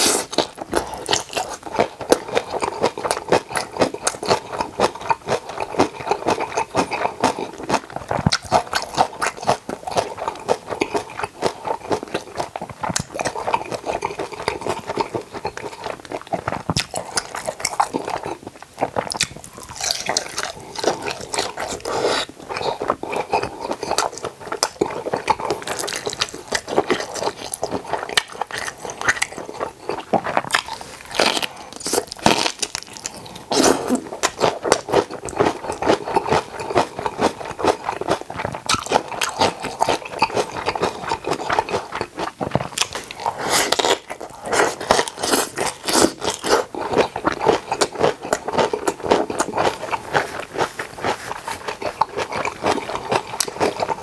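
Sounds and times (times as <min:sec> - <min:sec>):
wet crunching and chewing: 0:00.0 - 0:54.0.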